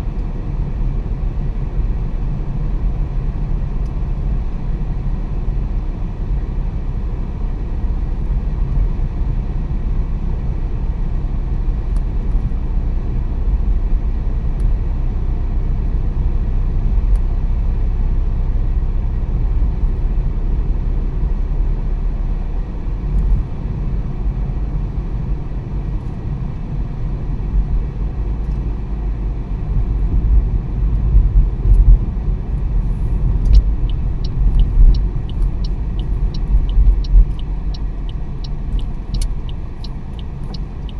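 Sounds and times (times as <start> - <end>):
car engine and tyre rumble: 0.0 - 40.9
quick ticking: 33.2 - 40.9.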